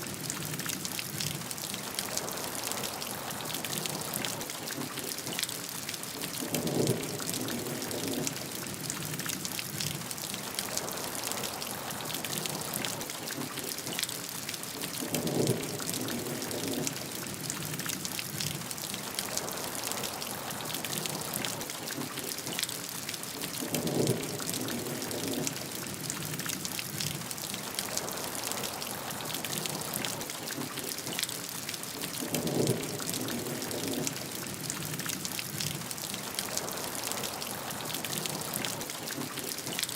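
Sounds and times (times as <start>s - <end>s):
heavy rain pattering: 0.0s - 39.9s
faint thunder: 6.4s - 9.0s, 15.0s - 17.6s, 32.2s - 34.9s.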